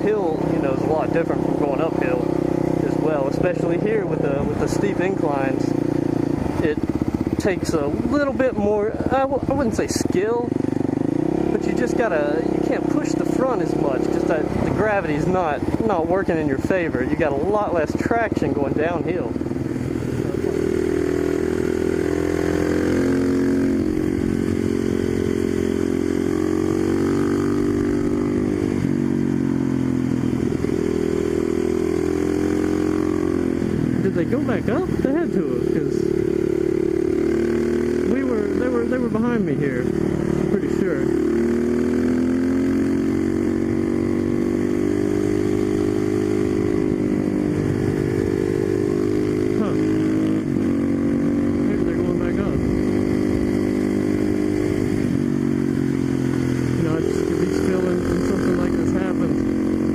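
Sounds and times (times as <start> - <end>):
motorcycle engine idling: 0.0 - 22.0
motorcycle engine running: 0.0 - 59.9.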